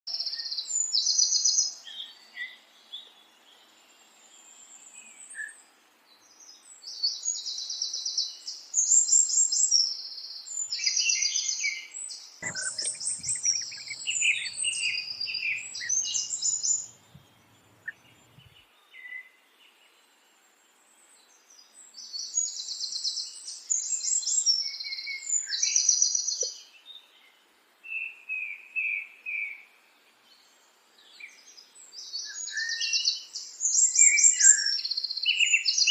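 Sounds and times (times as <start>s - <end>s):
low bird chirps: 12.4s - 18.7s
songbirds trilling: 12.4s - 18.7s.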